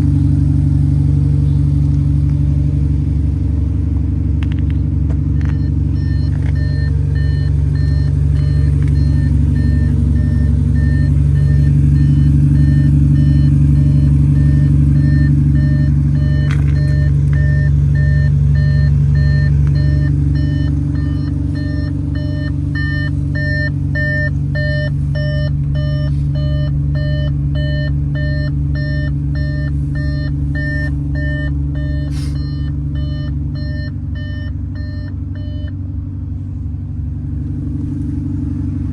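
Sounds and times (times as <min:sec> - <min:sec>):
diesel engine running: 0:00.0 - 0:38.9
short electronic beeps: 0:05.3 - 0:35.8.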